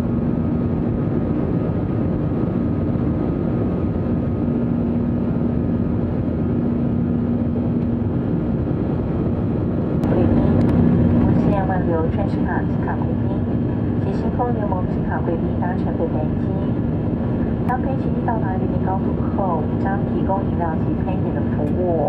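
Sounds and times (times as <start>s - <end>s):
airliner cabin engine noise: 0.0s - 22.0s.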